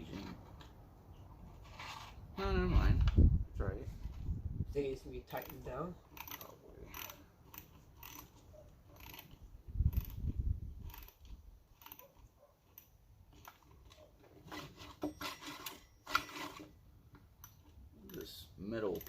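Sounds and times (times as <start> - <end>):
clicks and small metal knocks: 10.9 - 19.0.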